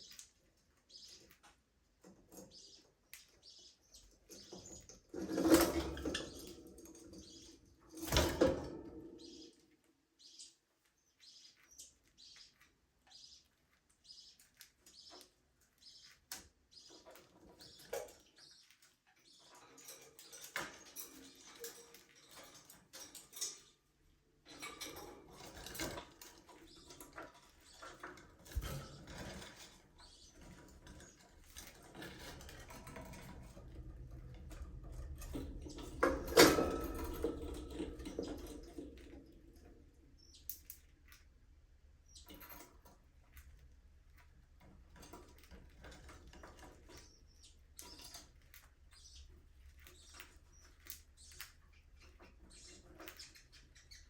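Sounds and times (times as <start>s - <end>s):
budgerigars chirping: 0.8s - 1.4s, 10.2s - 19.8s, 46.9s - 54.0s.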